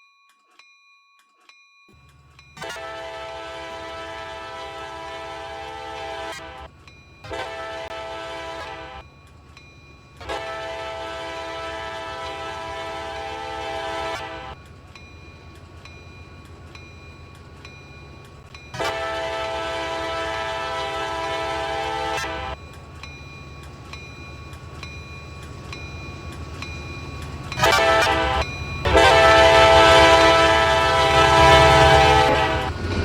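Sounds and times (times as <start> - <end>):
train rumble: 2.0 - 33.0
locomotive air horn blasts: 2.6 - 9.0, 10.2 - 14.6, 18.7 - 22.6, 27.4 - 32.8.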